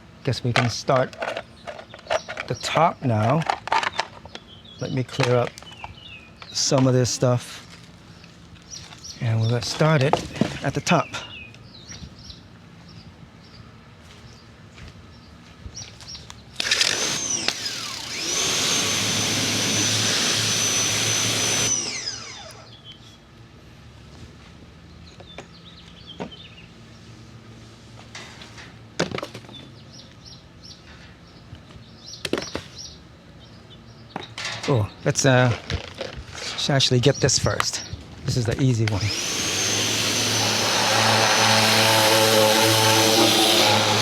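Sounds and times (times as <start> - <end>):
pressure washer motor whining: 16.6 - 22.7, 39.0 - 44.0.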